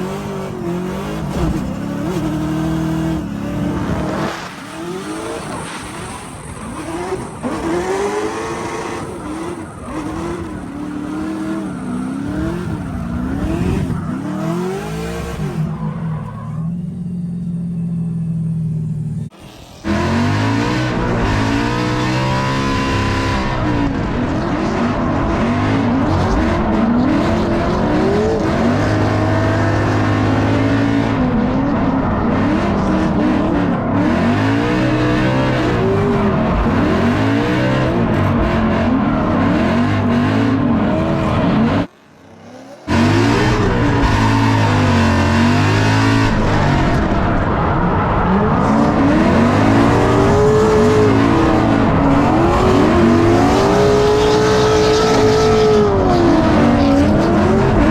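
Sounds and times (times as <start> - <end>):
race car engine revving: 0.0 - 57.9.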